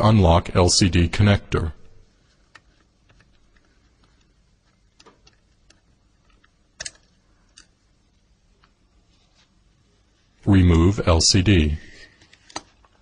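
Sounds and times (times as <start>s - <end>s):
metal tool clicking on phone parts: 5.0s - 7.8s.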